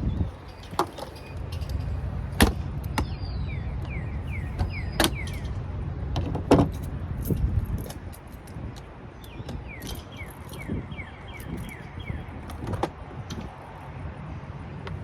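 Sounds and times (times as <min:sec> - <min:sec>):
steady low rumble: 0:00.0 - 0:15.0
songbird singing falling notes: 0:02.8 - 0:05.6, 0:09.2 - 0:12.8.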